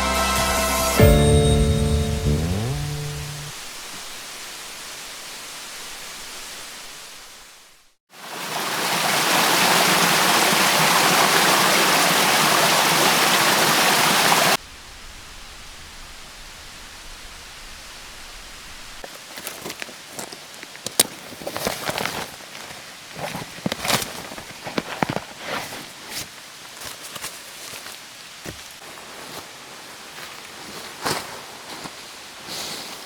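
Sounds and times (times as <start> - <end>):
stream water rushing: 3.0 - 14.7.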